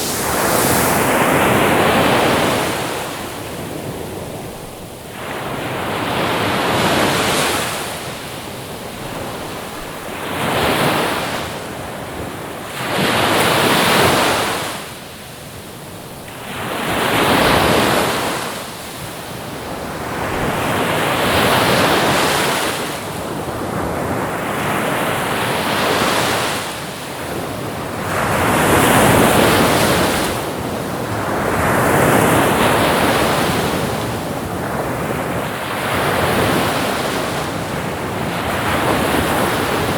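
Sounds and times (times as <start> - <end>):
ocean waves breaking: 0.0 - 14.7, 27.9 - 39.9.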